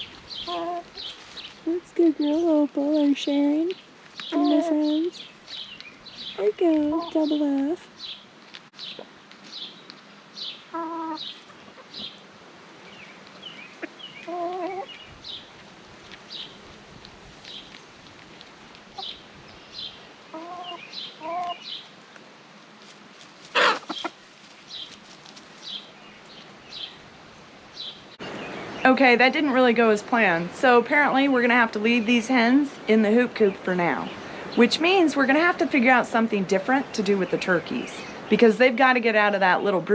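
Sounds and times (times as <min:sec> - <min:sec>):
hens clucking: 0:00.0 - 0:01.4, 0:04.2 - 0:07.8, 0:10.6 - 0:12.2, 0:13.2 - 0:15.0, 0:20.3 - 0:21.7, 0:23.4 - 0:24.3.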